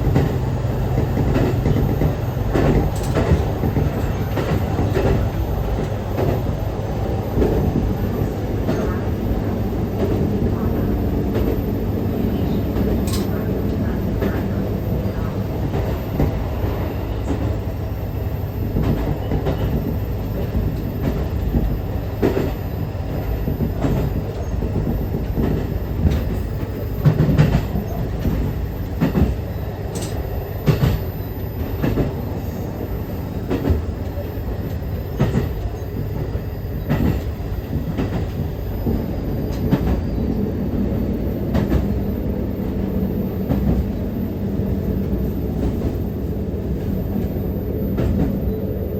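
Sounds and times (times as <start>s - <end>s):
wheels clacking over rail joints: 0.0s - 6.6s, 12.4s - 16.4s
railcar engine rumble: 0.0s - 48.9s.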